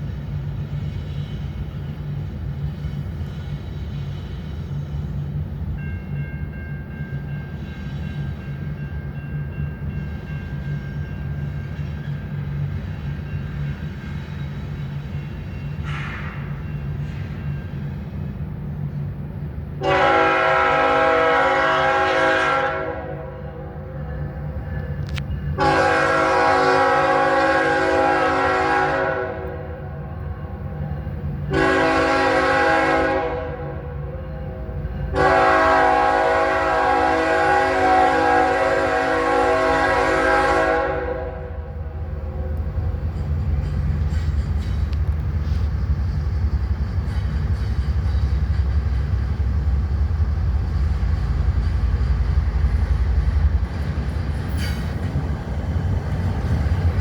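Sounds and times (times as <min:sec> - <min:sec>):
train rumbling: 0:00.0 - 0:57.0
train horn blasts: 0:19.8 - 0:24.0, 0:25.0 - 0:30.5, 0:31.5 - 0:42.7.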